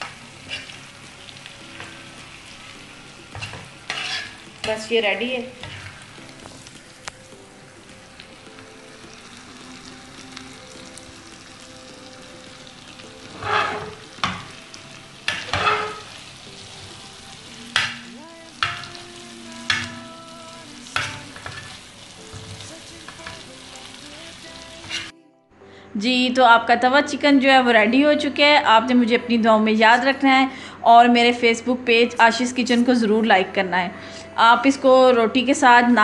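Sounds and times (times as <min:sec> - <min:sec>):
spoon scraping and knocking pan: 0:00.0 - 0:00.8, 0:03.3 - 0:04.9, 0:05.6 - 0:06.8, 0:13.2 - 0:17.0, 0:17.7 - 0:19.0, 0:19.7 - 0:20.0, 0:21.0 - 0:23.4, 0:24.8 - 0:25.1
chicken sizzling in oil: 0:00.0 - 0:25.1.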